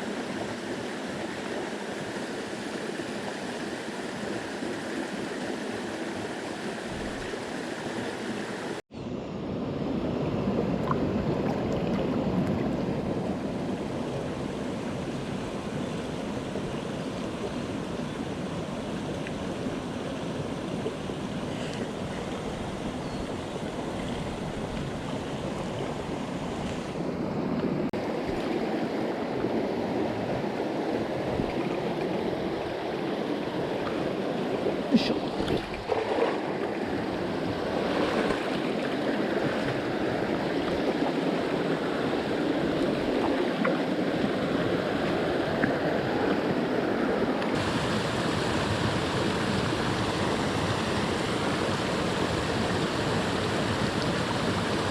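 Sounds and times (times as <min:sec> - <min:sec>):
stream rushing over rocks: 0:00.0 - 0:08.8, 0:28.0 - 0:54.9.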